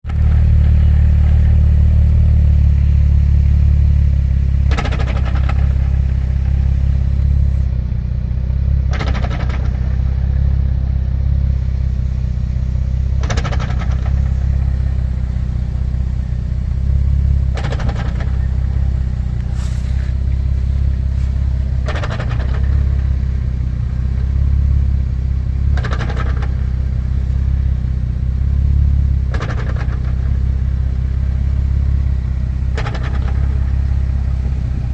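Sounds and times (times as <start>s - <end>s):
car engine running: 0.0s - 34.9s
clunk: 4.6s - 5.9s, 13.2s - 14.6s, 17.5s - 18.7s, 21.2s - 23.1s, 32.7s - 33.8s.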